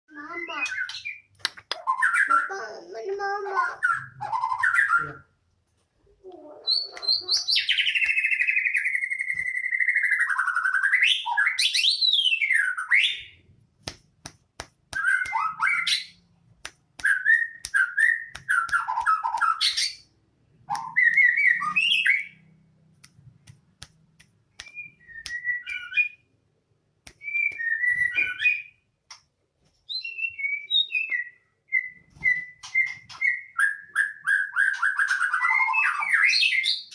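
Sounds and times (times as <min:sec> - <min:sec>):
bird singing whistled phrases: 0:00.2 - 0:02.5, 0:06.6 - 0:13.4, 0:15.0 - 0:16.2, 0:17.0 - 0:20.0, 0:20.7 - 0:22.4, 0:24.6 - 0:26.2, 0:27.2 - 0:28.8, 0:29.9 - 0:36.9.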